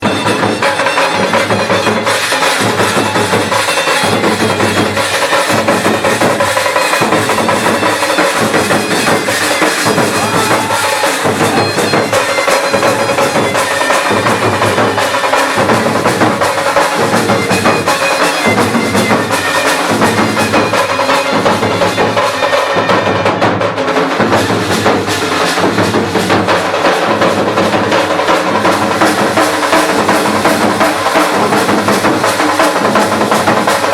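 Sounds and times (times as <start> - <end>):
reedy wind instrument melody: 0.0 - 23.5
cymbals: 0.0 - 33.9
drums beating a steady rhythm: 0.0 - 33.9.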